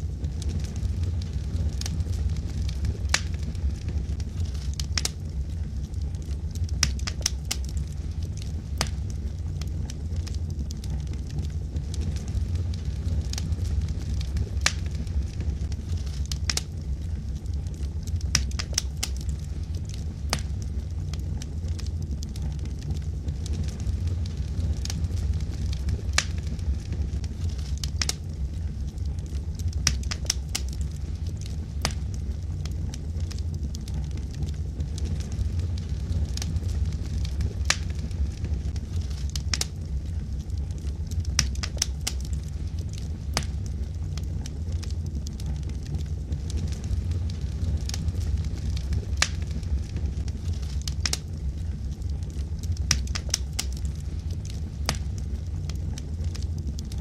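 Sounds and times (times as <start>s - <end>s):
fire crackling and popping: 0.0s - 57.0s
low rumble of flames: 0.0s - 57.0s.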